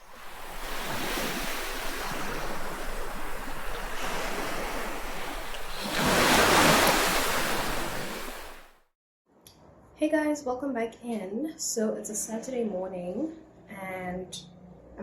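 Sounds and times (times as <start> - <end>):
ocean waves washing onto beach: 0.0 - 8.8.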